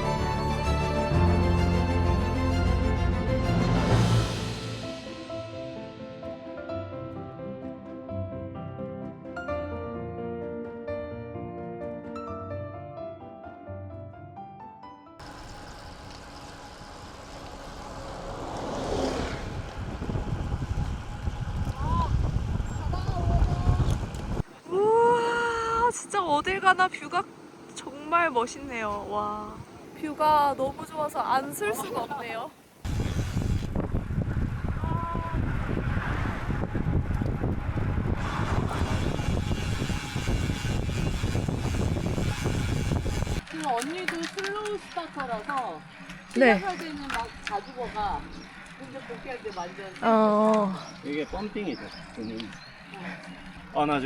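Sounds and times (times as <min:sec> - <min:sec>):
low rumbling gusts: 0:15.2 - 0:43.5
wind buffeting microphone: 0:15.9 - 0:24.5, 0:32.8 - 0:43.4.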